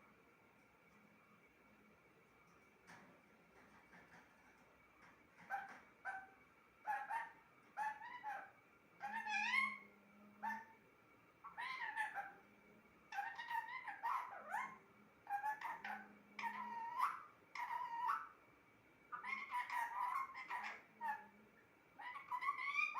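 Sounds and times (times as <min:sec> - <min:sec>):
parrot calling: 0:05.4 - 0:10.8, 0:11.4 - 0:12.5, 0:13.1 - 0:18.4, 0:19.1 - 0:21.3, 0:22.0 - 0:22.9.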